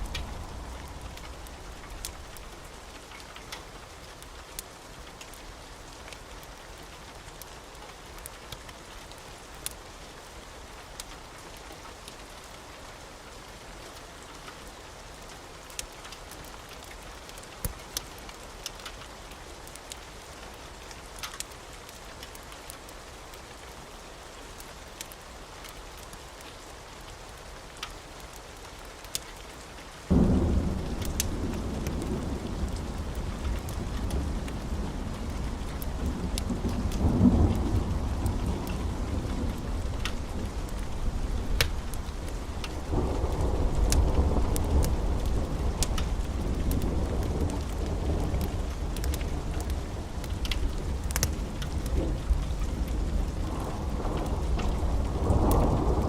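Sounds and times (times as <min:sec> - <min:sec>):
wood fire crackling: 0:00.0 - 0:09.8, 0:24.6 - 0:26.4, 0:27.0 - 0:56.0
soft steady hiss: 0:00.0 - 0:56.0
fire popping: 0:30.7 - 0:32.0, 0:39.4 - 0:53.6.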